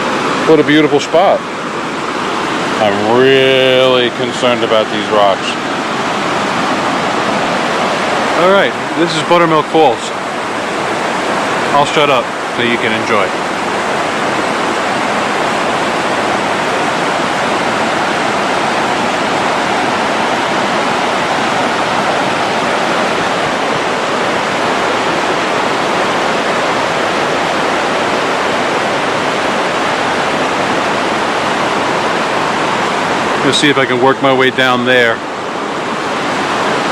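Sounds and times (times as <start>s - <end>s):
waterfall rushing over rocks: 0.0s - 36.9s.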